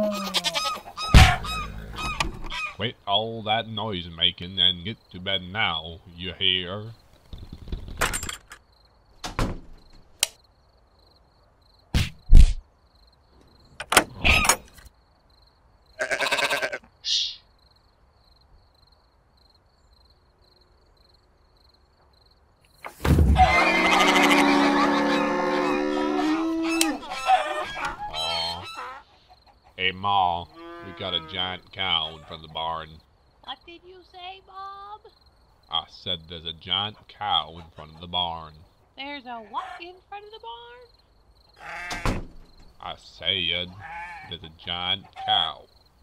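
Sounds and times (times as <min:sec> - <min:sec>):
rooster crowing: 0:23.4 - 0:29.1.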